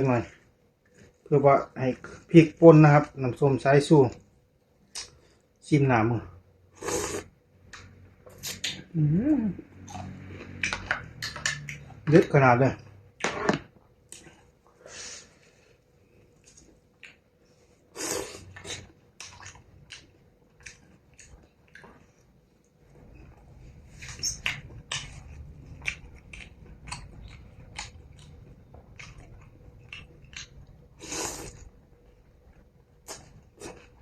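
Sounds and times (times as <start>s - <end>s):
low steady hum: 0.0s - 34.0s
chewing and biting: 24.0s - 30.8s.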